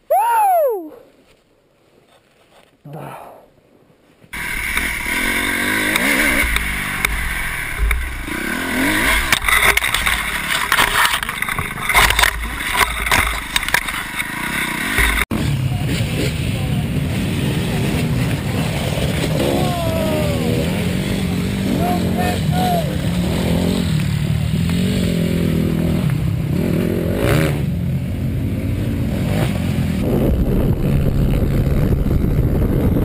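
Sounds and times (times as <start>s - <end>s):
steady dirt bike engine: 4.3s - 33.0s
dirt bike engine revving: 4.4s - 33.0s
wind noise on microphone: 30.0s - 33.0s.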